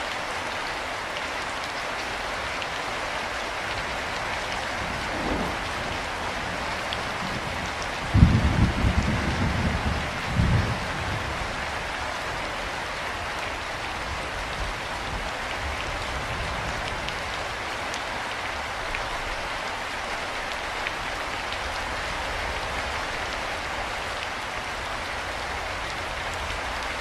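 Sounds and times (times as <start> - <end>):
steady rain falling: 0.0 - 27.0
loud low rumble: 5.0 - 6.2.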